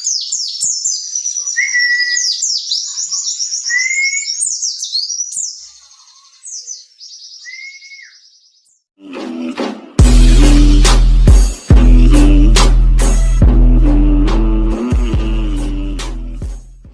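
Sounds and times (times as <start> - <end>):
bird twittering song: 0.0 - 8.9
music: 9.0 - 16.9.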